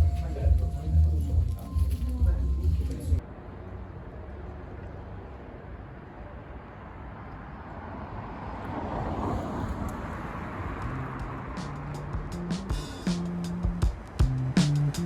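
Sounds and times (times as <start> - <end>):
city traffic: 0.0 - 15.0
vehicle passing: 6.8 - 15.0.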